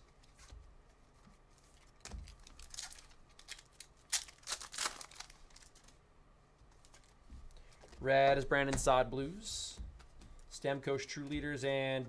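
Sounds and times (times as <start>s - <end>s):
cards rustling: 1.2s - 6.0s, 6.6s - 10.5s
wrappers tearing and crinkling: 1.8s - 6.0s.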